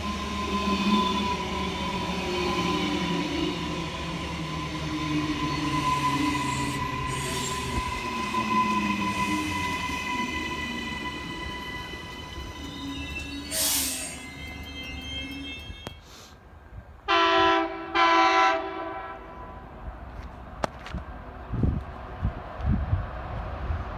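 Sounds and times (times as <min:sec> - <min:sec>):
train cars rumbling: 0:00.0 - 0:16.2
train wheels squealing: 0:00.0 - 0:16.3.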